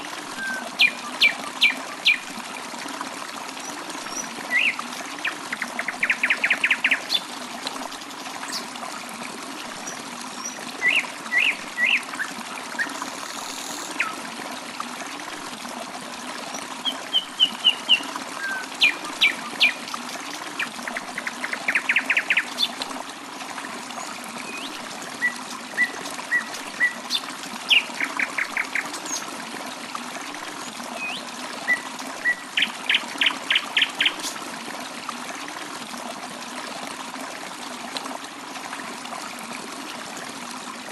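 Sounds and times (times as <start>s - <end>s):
running water trickling: 0.0s - 40.9s.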